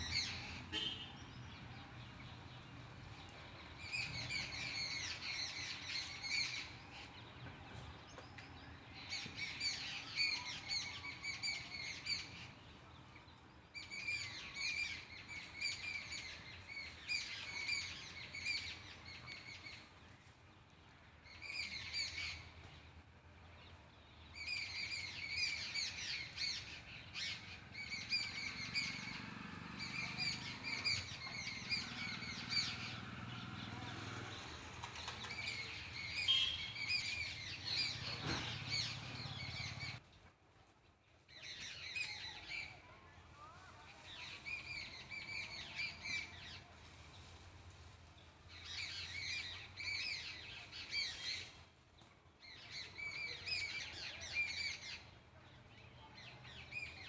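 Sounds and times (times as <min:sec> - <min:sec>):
bird chirping rapidly: 0:34.9 - 0:40.0.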